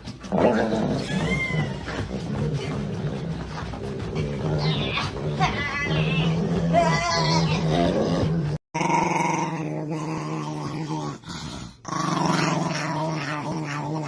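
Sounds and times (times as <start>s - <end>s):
dog growling: 0.0s - 14.0s.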